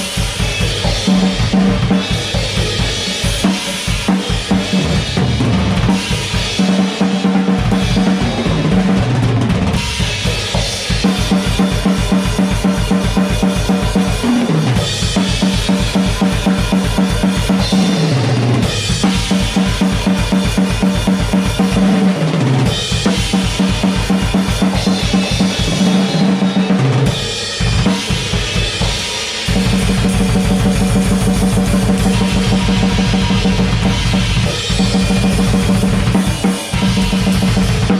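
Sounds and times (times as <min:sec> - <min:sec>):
drum kit played fast: 0:00.0 - 0:37.9.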